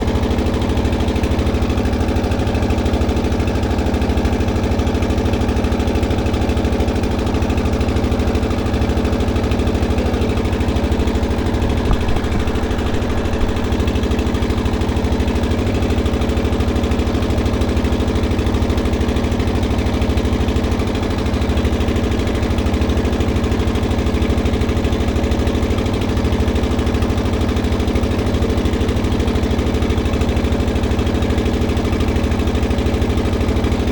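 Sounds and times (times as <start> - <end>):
engine running steadily: 0.0 - 33.9
small knocks: 11.6 - 13.7.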